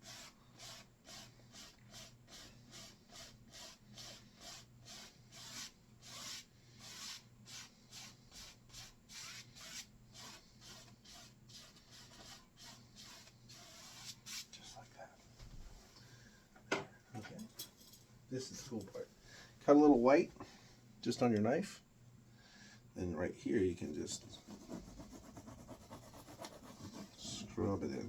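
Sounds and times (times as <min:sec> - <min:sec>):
brush stroking on canvas: 0:24.0 - 0:27.5.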